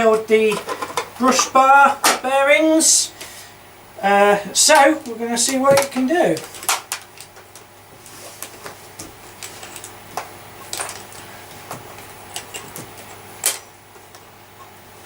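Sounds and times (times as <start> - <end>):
objects clicking and knocking: 0.5 - 1.2.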